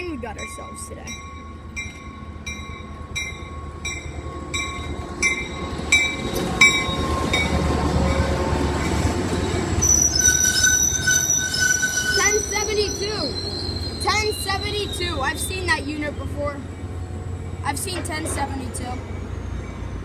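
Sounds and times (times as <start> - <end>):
station bell ringing: 0.0 - 19.9
train rumble: 0.0 - 20.0
train wheel squeal: 4.6 - 16.4.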